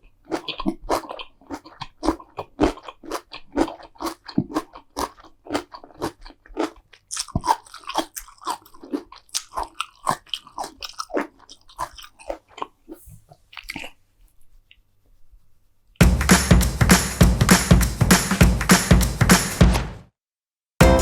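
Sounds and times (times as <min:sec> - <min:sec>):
chewing crunchy food: 0:00.0 - 0:14.9.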